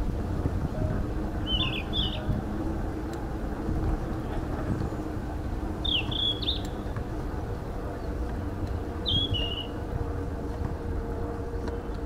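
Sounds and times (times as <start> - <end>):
bicycle rolling on paved path: 0.0 - 12.0
bird chirping: 1.4 - 2.4, 5.8 - 6.8, 9.0 - 9.8.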